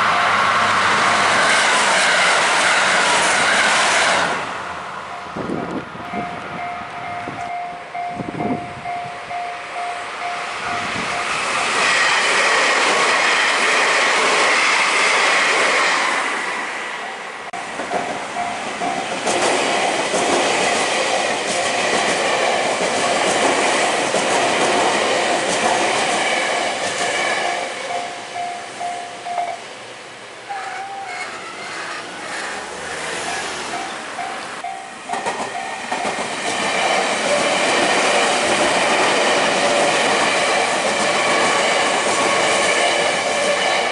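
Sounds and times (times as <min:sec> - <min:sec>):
crossing warning bell ringing: 0:00.0 - 0:01.4, 0:04.9 - 0:11.7, 0:17.0 - 0:19.2, 0:26.6 - 0:29.8, 0:30.5 - 0:31.8, 0:33.0 - 0:38.5
electric train running past: 0:00.0 - 0:43.9.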